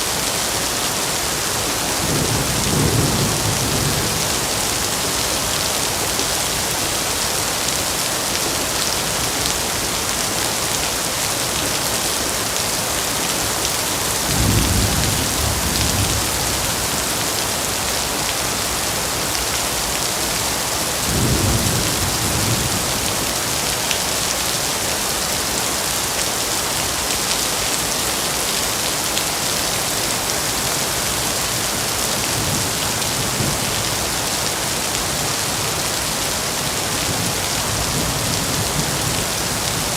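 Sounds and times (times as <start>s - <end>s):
heavy rain hissing: 0.0s - 39.9s
thunder rumbling: 14.3s - 17.3s.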